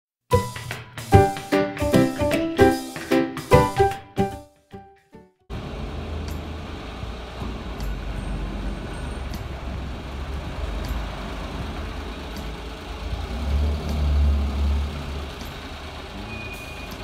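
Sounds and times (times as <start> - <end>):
car engine rumble: 5.5 - 17.0.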